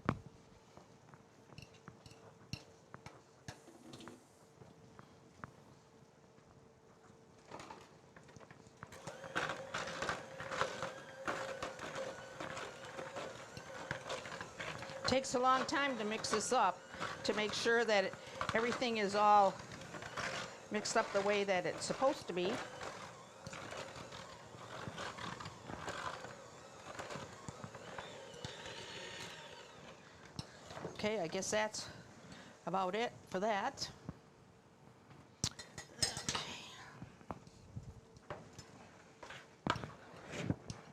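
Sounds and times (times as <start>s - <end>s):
electric mixer motor hum: 8.9s - 30.9s.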